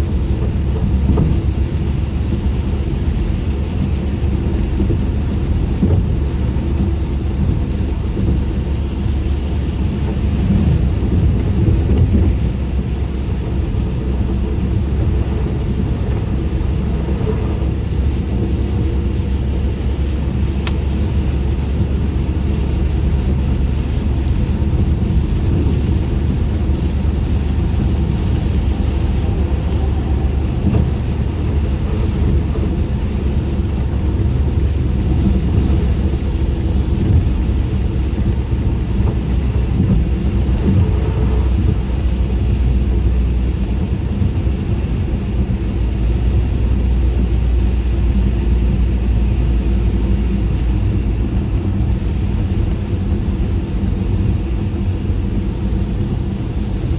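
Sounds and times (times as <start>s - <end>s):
tyre and road noise: 0.0s - 56.9s
faint tick: 20.6s - 20.8s.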